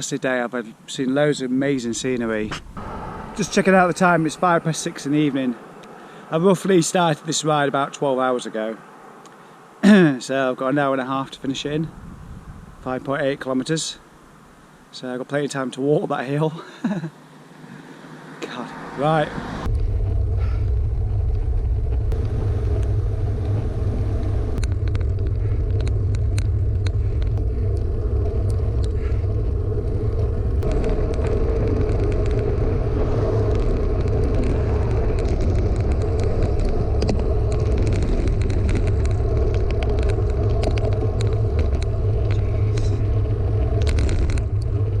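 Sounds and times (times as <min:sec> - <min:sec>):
bicycle tyre noise: 0:01.7 - 0:06.9, 0:11.2 - 0:14.8, 0:17.6 - 0:45.0
wind rumble on microphone: 0:11.0 - 0:13.8, 0:19.3 - 0:45.0
small ticks and rattles: 0:24.6 - 0:29.2, 0:30.1 - 0:45.0.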